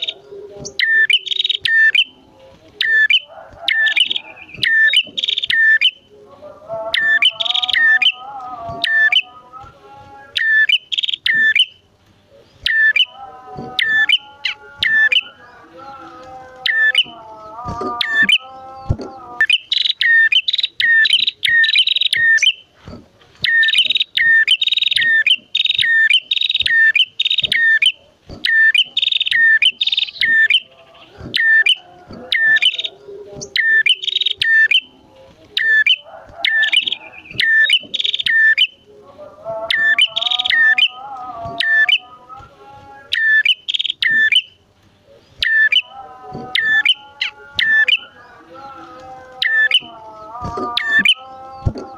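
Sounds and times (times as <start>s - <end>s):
birds chirping sharply: 0.0s - 2.2s, 2.8s - 6.1s, 6.9s - 9.4s, 10.2s - 22.8s, 23.4s - 35.0s, 35.6s - 38.9s, 39.6s - 42.1s, 43.0s - 51.9s
low wavering bird twitter: 0.0s - 2.2s, 2.8s - 6.1s, 6.9s - 9.3s, 10.2s - 11.8s, 12.4s - 13.2s, 13.8s - 15.7s, 19.4s - 22.6s, 23.4s - 35.0s, 35.6s - 38.8s, 39.7s - 41.0s, 43.0s - 46.0s, 46.6s - 48.8s.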